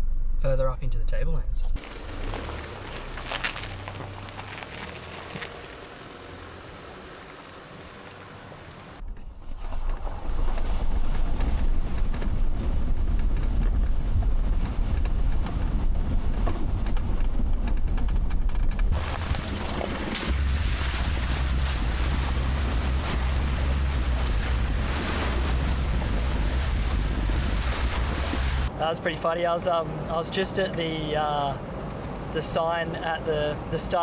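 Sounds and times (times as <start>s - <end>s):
wind buffeting microphone: 9.2s - 28.7s.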